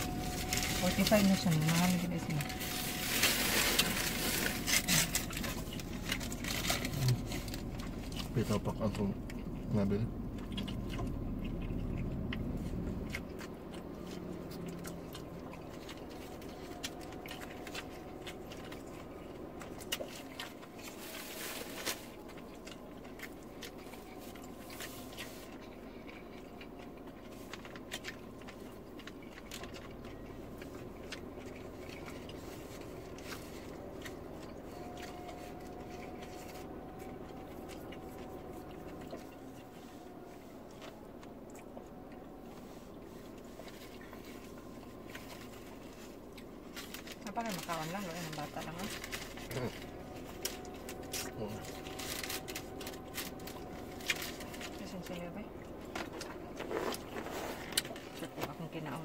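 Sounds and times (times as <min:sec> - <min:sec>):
people chewing and biting: 0:00.0 - 0:59.0
steady low hum: 0:00.0 - 0:59.0.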